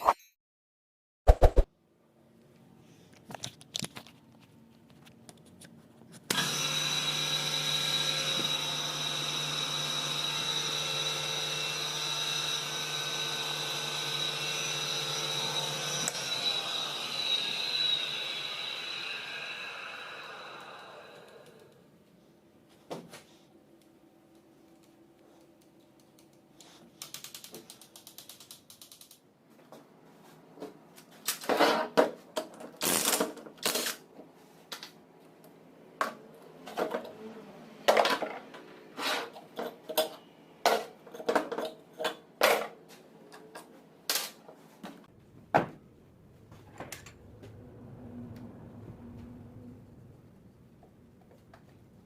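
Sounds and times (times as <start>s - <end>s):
ratcheting clicks: 27.0s - 29.2s.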